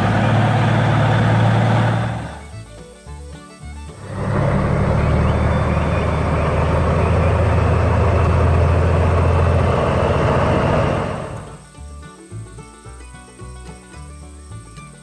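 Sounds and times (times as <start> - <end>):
heavy truck engine running: 0.0 - 11.6.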